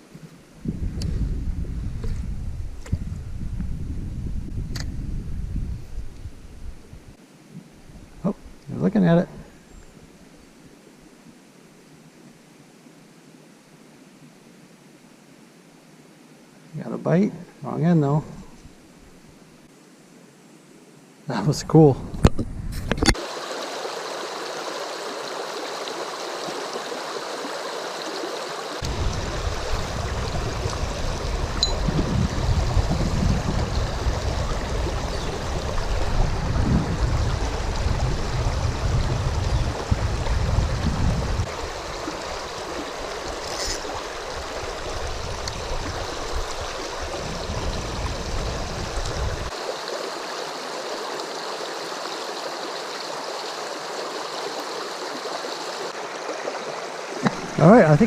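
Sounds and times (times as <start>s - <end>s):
river water over rapids: 41.5s - 57.6s.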